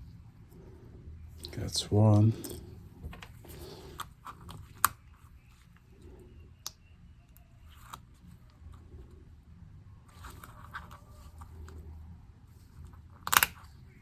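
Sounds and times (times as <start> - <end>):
plastic keycaps clicking: 13.2 - 13.6.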